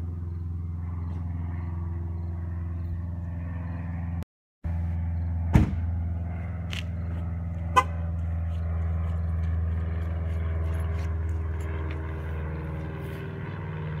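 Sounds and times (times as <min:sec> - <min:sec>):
sharp knock: 0:05.5 - 0:05.9
car horn chirp: 0:07.7 - 0:08.0.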